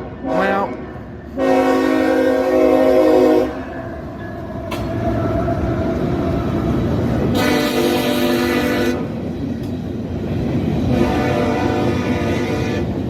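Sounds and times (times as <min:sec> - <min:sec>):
passing train rumble: 0:00.0 - 0:13.0
locomotive air horn: 0:00.2 - 0:00.8, 0:01.4 - 0:03.6, 0:07.3 - 0:09.1, 0:10.9 - 0:13.0.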